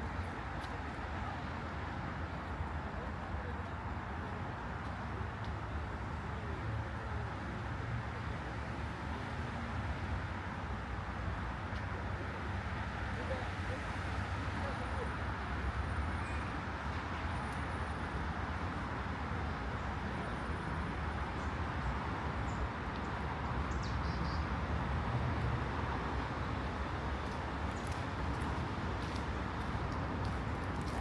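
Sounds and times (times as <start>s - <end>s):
distant traffic rumble: 17.0s - 31.0s.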